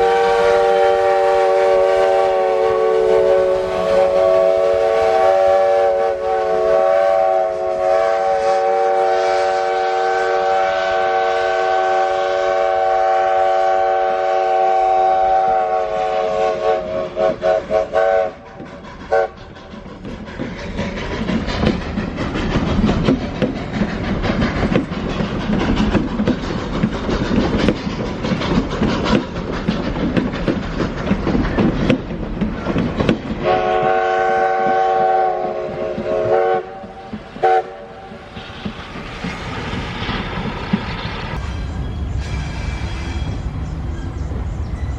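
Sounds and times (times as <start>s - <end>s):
steam locomotive chord whistle: 0.0s - 19.4s, 33.4s - 38.2s
train clatter and rumble: 0.0s - 44.9s.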